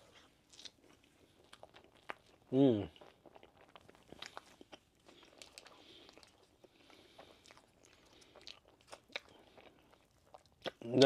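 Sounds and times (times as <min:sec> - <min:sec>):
chewing pastry: 0:00.0 - 0:11.0.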